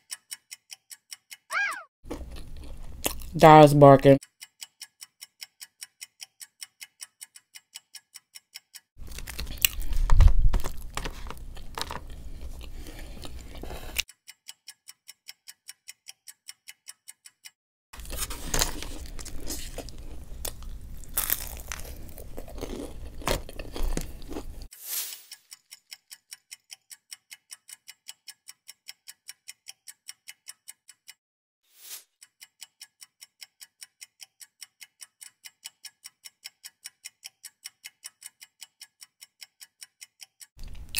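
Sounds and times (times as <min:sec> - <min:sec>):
steady ticking: 0:00.0 - 0:01.5, 0:04.2 - 0:08.9, 0:25.5 - 0:31.2, 0:32.2 - 0:40.6
chewing and crunching food: 0:02.1 - 0:03.4, 0:09.0 - 0:14.0, 0:18.0 - 0:24.7, 0:40.6 - 0:40.9.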